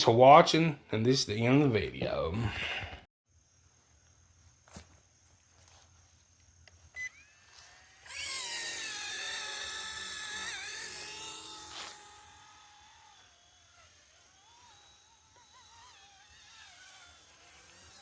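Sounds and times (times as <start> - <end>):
small electric motor whine: 4.0 - 18.0.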